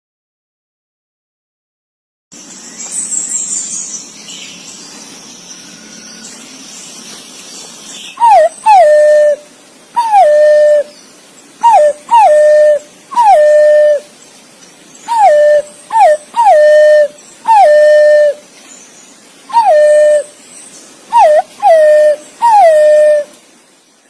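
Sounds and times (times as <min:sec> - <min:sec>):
green pigeon whistled calls: 0:08.1 - 0:11.0, 0:11.6 - 0:14.1, 0:15.0 - 0:18.4, 0:19.5 - 0:20.4, 0:21.1 - 0:23.4.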